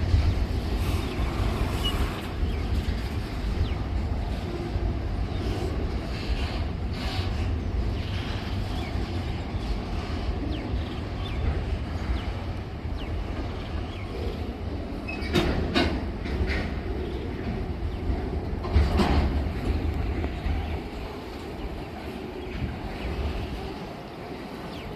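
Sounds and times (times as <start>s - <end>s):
train wheels rumbling on rail: 0.0s - 24.9s
wheels clacking over rail joints: 11.3s - 24.9s.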